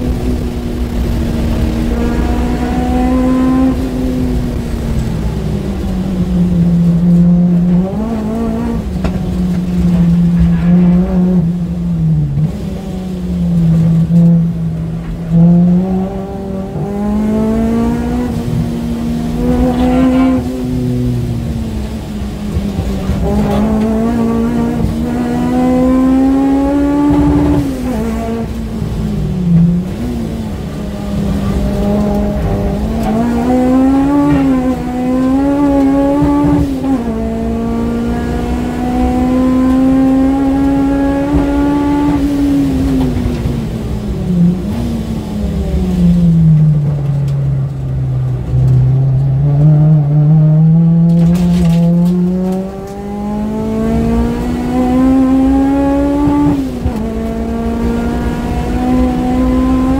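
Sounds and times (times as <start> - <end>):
car engine revving: 0.0 - 59.9
road and tyre noise: 0.0 - 59.9.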